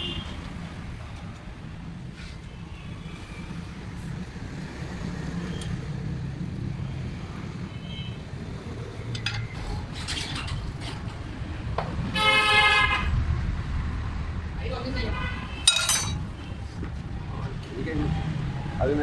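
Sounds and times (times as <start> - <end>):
road traffic rumble: 0.0 - 19.0
vehicle horn: 12.2 - 13.1.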